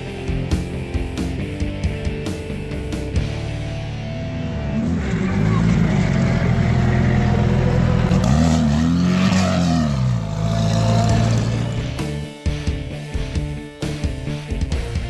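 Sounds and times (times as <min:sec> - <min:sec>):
rock music with drums: 0:00.0 - 0:05.0, 0:09.8 - 0:15.0
rally car engine revving: 0:04.2 - 0:12.2.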